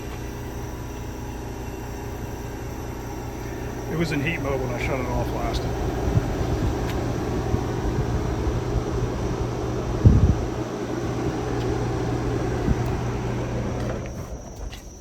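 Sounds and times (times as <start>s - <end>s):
heat pump humming: 0.0s - 15.0s.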